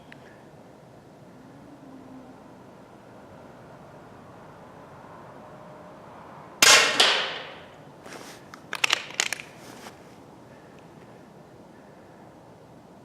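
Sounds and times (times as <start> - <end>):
air rifle shot: 6.6 - 7.7
smaller crack: 6.6 - 10.0.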